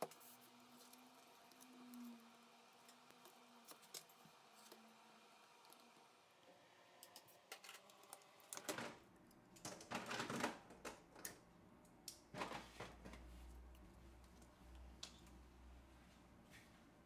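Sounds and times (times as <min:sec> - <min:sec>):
faint clicks of small tools: 0:07.0 - 0:08.6, 0:13.7 - 0:15.4.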